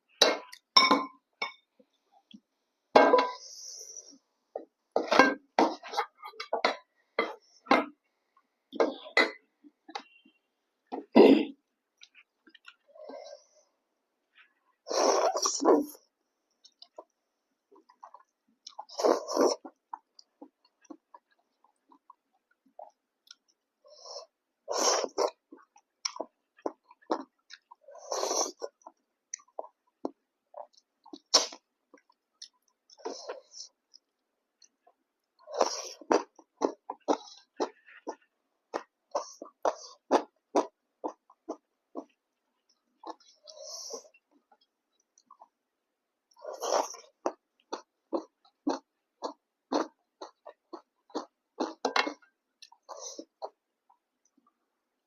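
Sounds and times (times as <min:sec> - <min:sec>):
person chewing and smacking: 0:25.1 - 0:27.9, 0:28.5 - 0:43.5, 0:46.4 - 0:54.6.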